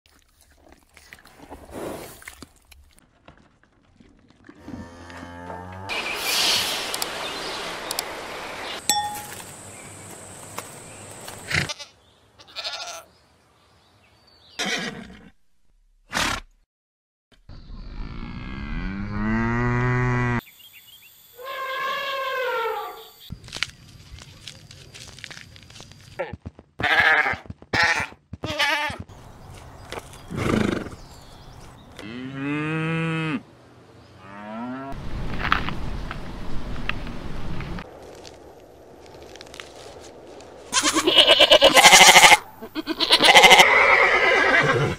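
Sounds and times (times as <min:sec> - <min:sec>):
cow mooing: 0:04.6 - 0:05.9, 0:32.0 - 0:33.4
steady hiss: 0:06.0 - 0:08.8
farm animal calling: 0:11.4 - 0:13.1, 0:40.7 - 0:44.9
goat bleating: 0:11.6 - 0:13.1, 0:26.8 - 0:29.0, 0:40.7 - 0:44.7.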